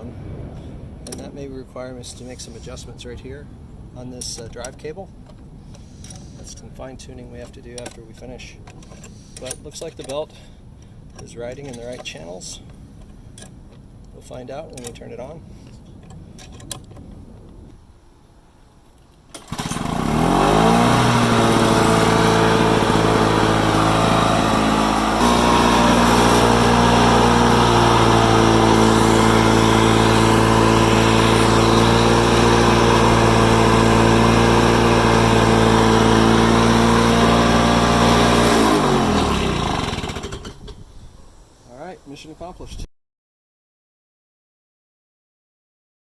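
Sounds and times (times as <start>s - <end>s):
lawn mower engine running: 19.3s - 40.7s.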